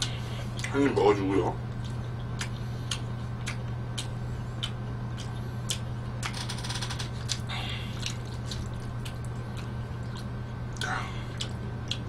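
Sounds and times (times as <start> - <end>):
crunchy chewing: 1.7 - 6.3, 7.2 - 12.0.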